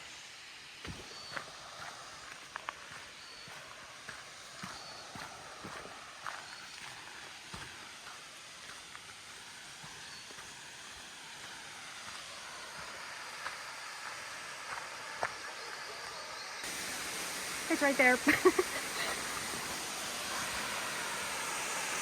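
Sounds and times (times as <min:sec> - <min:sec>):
waterfall rushing: 0:00.0 - 0:22.0
footsteps on trail: 0:00.8 - 0:16.8.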